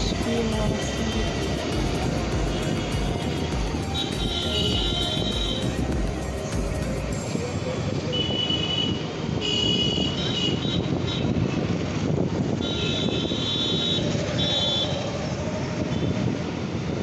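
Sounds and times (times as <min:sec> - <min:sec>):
vehicle horns honking: 0:00.0 - 0:05.9, 0:07.9 - 0:11.7, 0:12.5 - 0:15.1
road traffic rumble: 0:00.0 - 0:17.0.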